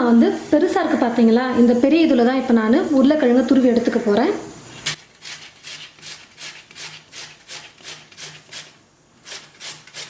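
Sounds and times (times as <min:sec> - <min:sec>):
potato being grated: 0:04.8 - 0:10.0.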